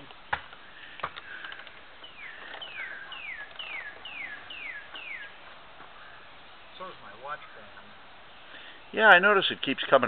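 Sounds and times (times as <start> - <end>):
bird whistling downward notes: 2.0 - 5.4.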